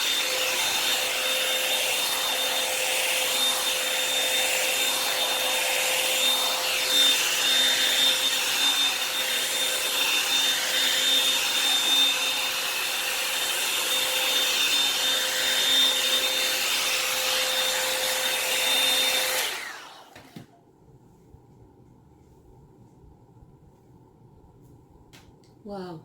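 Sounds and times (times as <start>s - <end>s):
hot-air dryer brush running: 0.0s - 20.4s.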